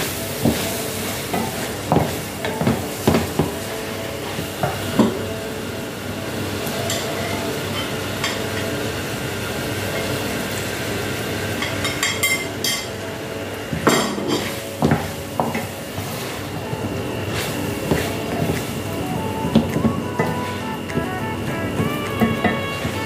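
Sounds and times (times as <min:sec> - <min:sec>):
frying sizzle: 0:00.0 - 0:23.0.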